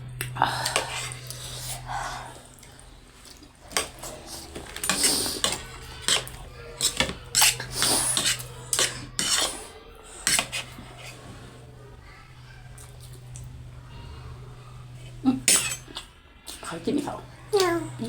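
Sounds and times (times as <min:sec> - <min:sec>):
cutlery clinking against bowls: 0:02.7 - 0:11.2, 0:15.4 - 0:16.7.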